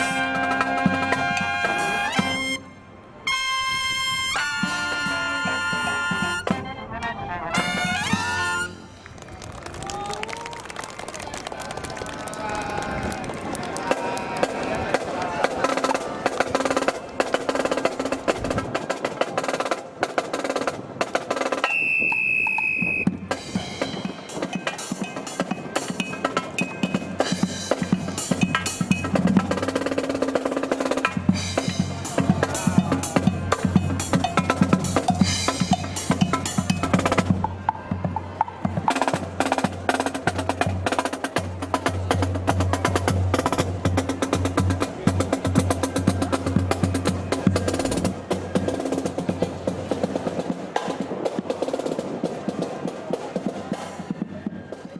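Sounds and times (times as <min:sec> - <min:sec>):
marching band playing: 0:00.0 - 0:09.3, 0:13.7 - 0:54.9
snare drum rolls: 0:13.7 - 0:54.2.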